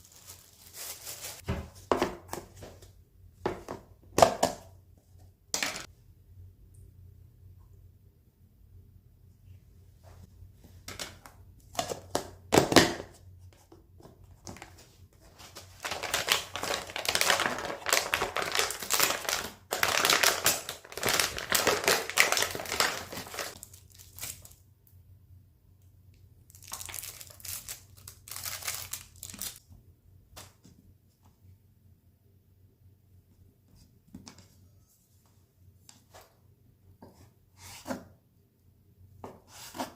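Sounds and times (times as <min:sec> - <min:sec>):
crinkling and crumpling by hand: 0:00.0 - 0:01.4, 0:13.5 - 0:24.7, 0:26.4 - 0:29.6.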